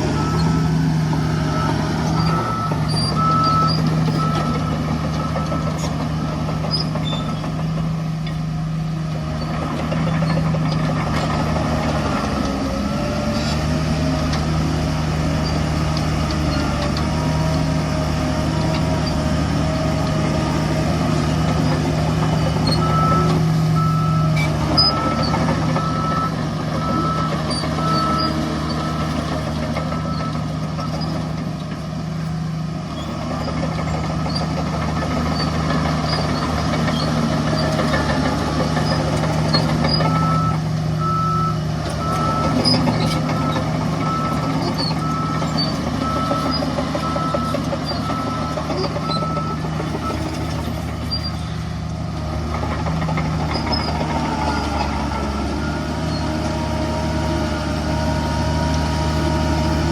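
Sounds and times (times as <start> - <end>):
reversing alarm beeping: 0.0 - 5.8, 22.5 - 29.3, 40.1 - 50.3
diesel machinery running: 0.0 - 59.9.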